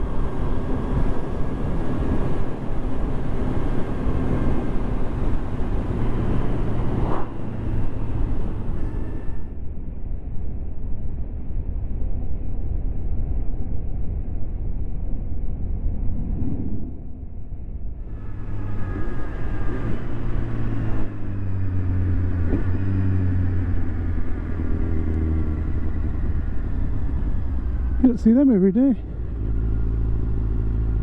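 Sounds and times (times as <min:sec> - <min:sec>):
wind and road noise: 0:00.0 - 0:31.0
motorcycle engine: 0:18.0 - 0:31.0.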